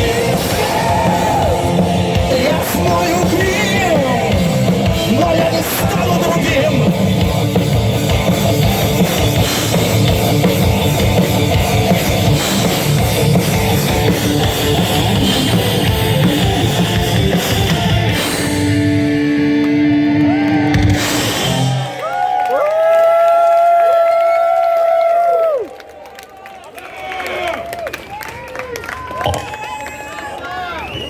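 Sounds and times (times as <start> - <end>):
rock band playing: 0.0 - 22.2.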